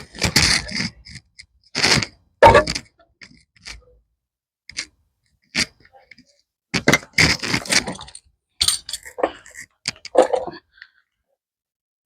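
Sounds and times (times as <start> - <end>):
metal tools clanking on car parts: 7.7 - 9.6.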